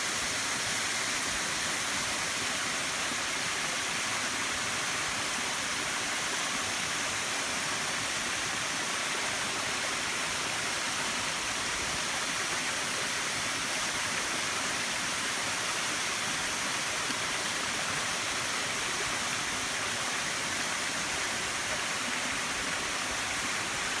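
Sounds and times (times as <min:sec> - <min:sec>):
waterfall rushing: 0:07.0 - 0:24.0.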